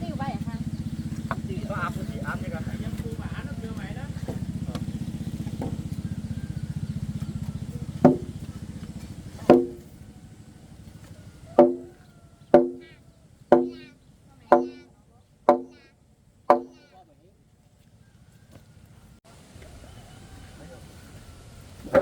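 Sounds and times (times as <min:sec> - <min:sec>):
small motor running: 0:00.0 - 0:13.0
sharp blows on wood: 0:08.0 - 0:08.6, 0:09.4 - 0:09.9, 0:11.6 - 0:12.0, 0:12.6 - 0:14.9, 0:15.5 - 0:15.9, 0:16.5 - 0:16.9.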